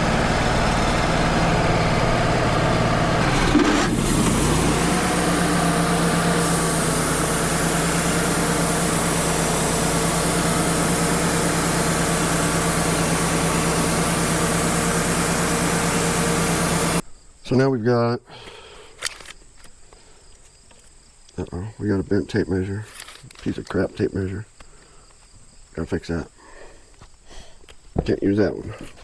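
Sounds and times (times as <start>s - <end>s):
sawmill engine running: 0.0s - 17.0s.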